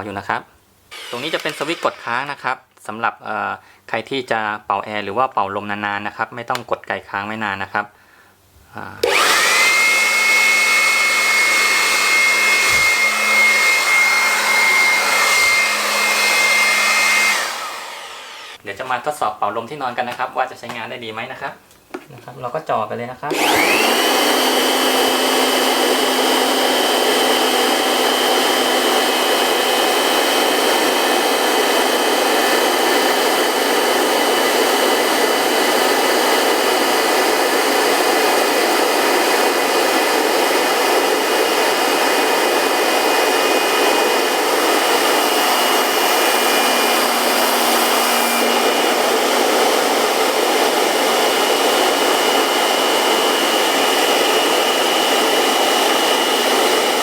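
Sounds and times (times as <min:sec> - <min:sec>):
electric blower motor whine: 0:00.9 - 0:02.4, 0:09.0 - 0:18.6, 0:23.3 - 0:57.0.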